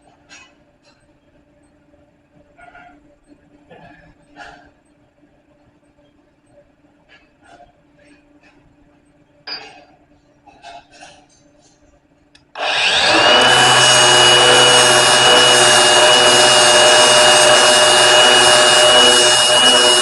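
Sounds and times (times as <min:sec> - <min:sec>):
electric grinder whining: 0:12.6 - 0:20.0.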